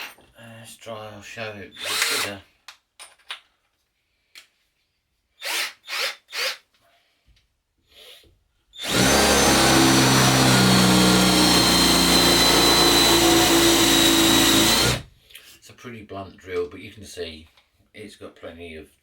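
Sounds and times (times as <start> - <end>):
cordless drill whining into wood: 1.8 - 2.4, 5.4 - 6.6, 8.8 - 15.1.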